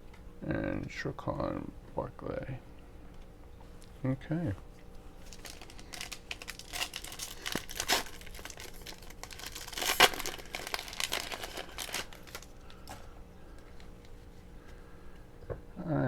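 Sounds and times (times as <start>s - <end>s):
foil wrapper crinkling and tearing: 5.2s - 14.2s.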